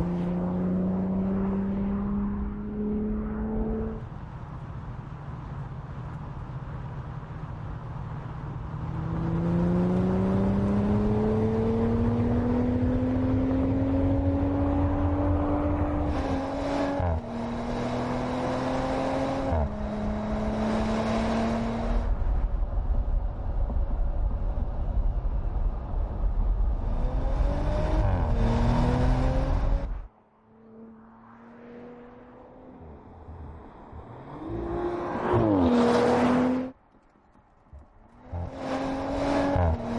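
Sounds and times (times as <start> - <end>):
car engine accelerating through gears: 8.8 - 22.1, 26.8 - 36.8, 38.2 - 39.9.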